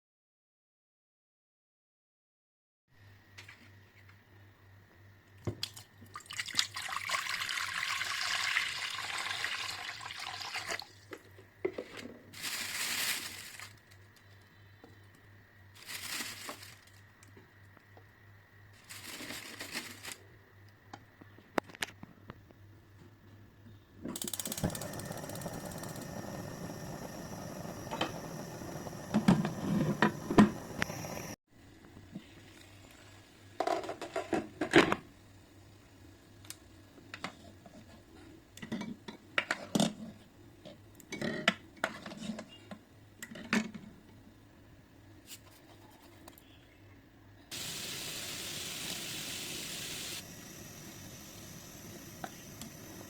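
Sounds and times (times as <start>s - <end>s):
steady hiss: 47.5s - 53.0s.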